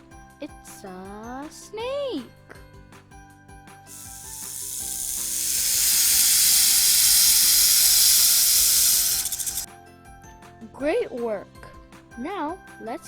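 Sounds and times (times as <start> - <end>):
snake hissing: 3.9 - 9.7.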